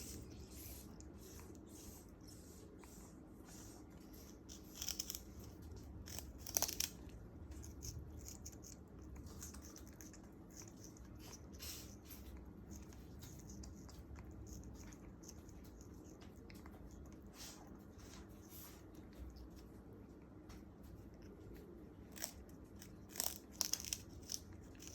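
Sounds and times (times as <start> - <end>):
parrot tearing sugarcane: 4.0 - 19.3, 22.0 - 24.9.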